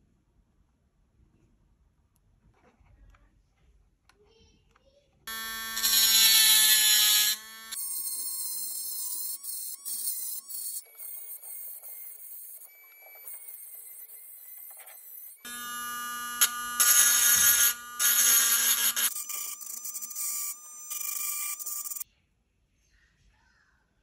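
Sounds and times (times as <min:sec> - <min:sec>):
rotary tool grinding metal: 0:05.3 - 0:22.0.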